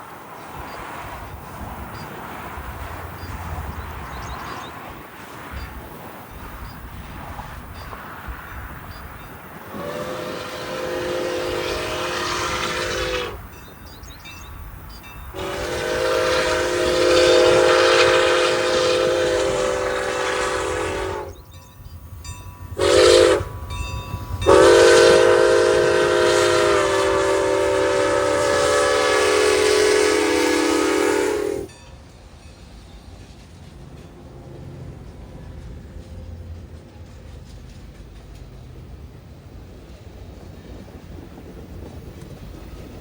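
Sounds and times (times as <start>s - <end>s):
low train rumble: 0.0s - 43.0s
train air horn blasts: 9.7s - 13.6s, 15.3s - 21.6s, 22.7s - 31.8s.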